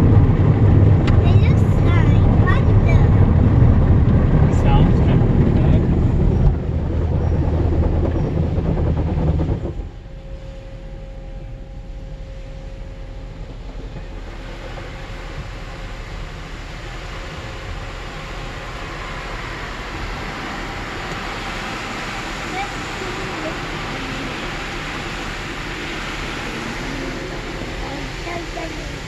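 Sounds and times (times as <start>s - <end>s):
car wash loud rumble: 0.0s - 11.2s, 11.8s - 29.0s
mechanical hum: 0.0s - 29.0s
hiss: 14.3s - 29.0s.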